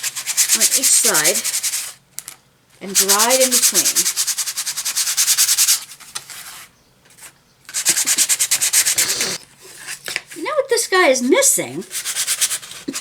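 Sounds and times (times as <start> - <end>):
sandpaper rubbing on wood: 2.9 - 5.9, 7.7 - 9.4, 11.9 - 13.0.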